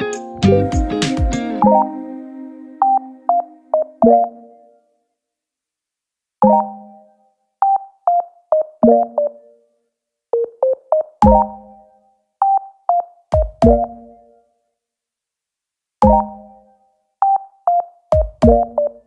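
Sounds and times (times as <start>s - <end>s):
plucky synthesizer notes: 0.0s - 4.6s
kick drum thuds: 11.2s - 11.4s, 13.4s - 13.9s, 16.0s - 16.2s, 18.2s - 18.8s.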